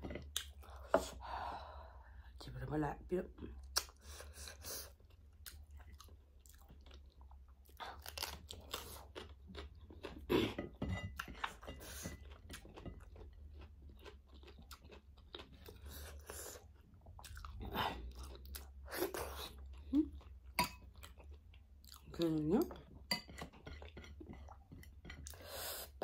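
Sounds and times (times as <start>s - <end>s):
person chewing crunchy food: 3.6s - 26.0s.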